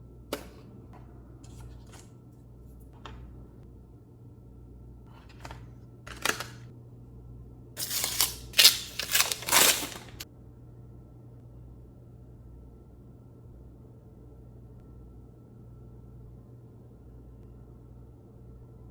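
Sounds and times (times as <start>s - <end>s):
packaging rustling and scraping: 1.5s - 2.8s, 5.2s - 6.6s, 7.8s - 10.2s.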